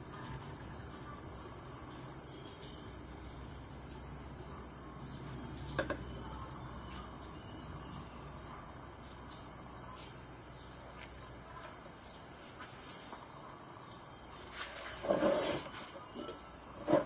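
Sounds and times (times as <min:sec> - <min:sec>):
faint high chirps: 0:00.0 - 0:16.9.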